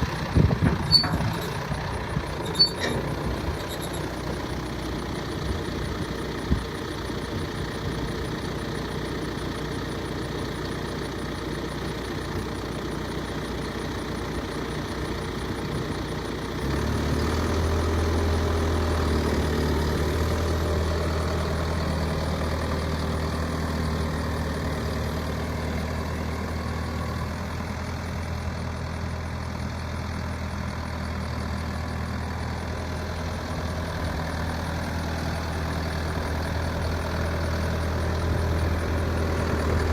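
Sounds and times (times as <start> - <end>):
diesel tractor engine idling: 0.0 - 39.9.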